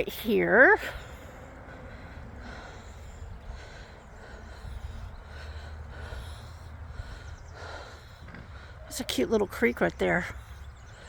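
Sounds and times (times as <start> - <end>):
soft breaths: 0.0 - 11.0
wind rumble on microphone: 0.8 - 8.8.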